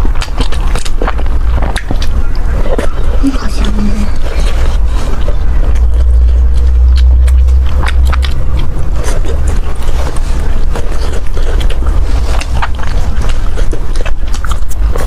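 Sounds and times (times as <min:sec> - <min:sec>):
chewing with wet mouth clicks: 0:00.0 - 0:15.0
low rumble: 0:00.0 - 0:15.0.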